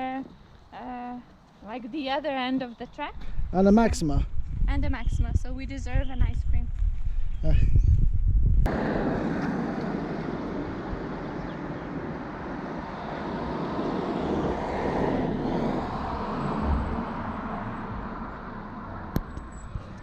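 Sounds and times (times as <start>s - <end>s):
road traffic: 8.7s - 20.0s
vehicle passing: 8.7s - 20.0s.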